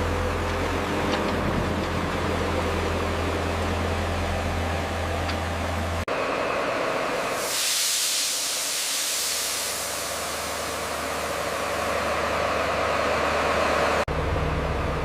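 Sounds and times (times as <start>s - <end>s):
deeper engine hum: 0.0s - 7.4s, 10.3s - 15.0s
machinery engine hum: 0.0s - 7.5s, 9.8s - 15.0s
loud hissing noise: 7.2s - 12.1s.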